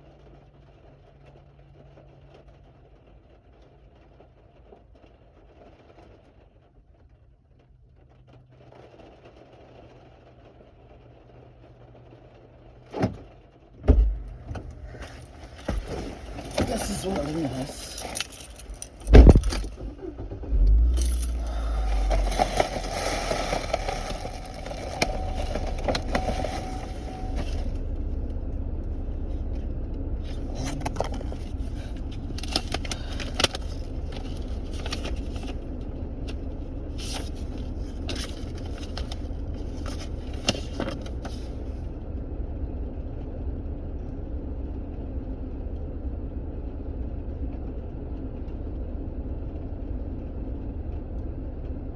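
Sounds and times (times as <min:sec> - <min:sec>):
car engine running: 0:13.0 - 0:51.9
loud thump: 0:13.8 - 0:15.0, 0:19.0 - 0:19.8
rustling and scraping of objects: 0:14.0 - 0:19.9, 0:20.5 - 0:41.8.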